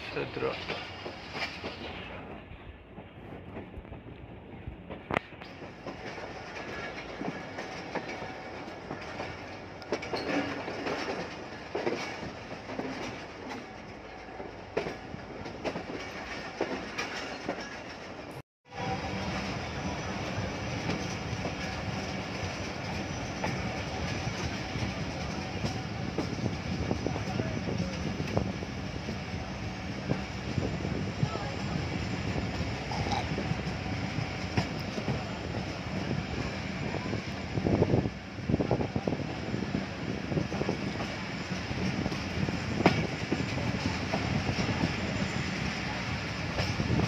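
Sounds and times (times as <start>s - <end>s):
train wheels rumbling on rail: 0.0s - 47.0s
wheels clacking over rail joints: 4.8s - 18.4s.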